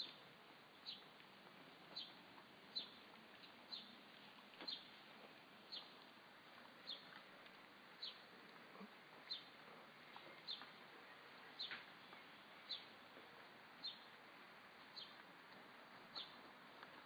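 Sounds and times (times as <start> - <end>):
small bird chirping: 0.8 - 1.1, 1.9 - 4.0, 4.6 - 5.0, 5.7 - 6.0, 6.8 - 7.2, 8.0 - 8.3, 9.2 - 13.0, 13.8 - 14.1, 14.9 - 15.2, 16.1 - 16.4.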